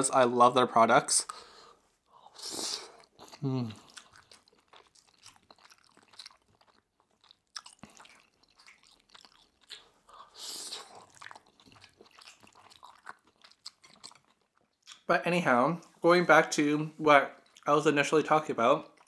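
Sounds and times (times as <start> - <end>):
person chewing food: 1.2 - 15.1, 17.3 - 17.7.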